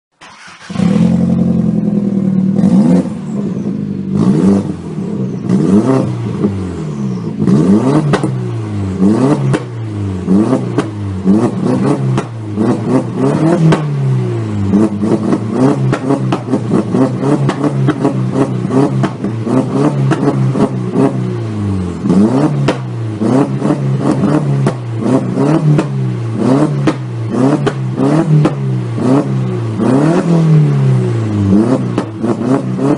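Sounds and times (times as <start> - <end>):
car engine revving in blips: 0.2 - 32.9
exhaust cracks: 14.7 - 21.2, 22.0 - 28.7.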